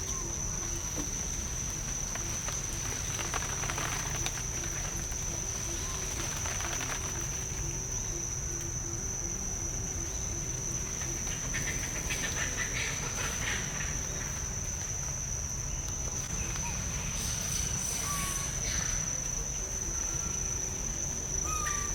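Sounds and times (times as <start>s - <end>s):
insects droning: 0.0s - 21.9s
low outdoor rumble: 0.0s - 21.9s
light crackling: 0.6s - 7.8s.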